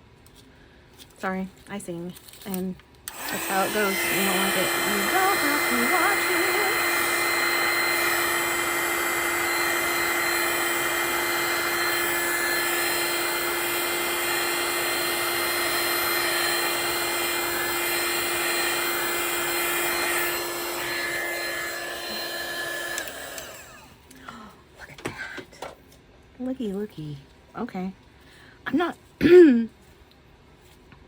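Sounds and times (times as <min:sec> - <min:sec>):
heat gun blowing: 0:03.1 - 0:24.0.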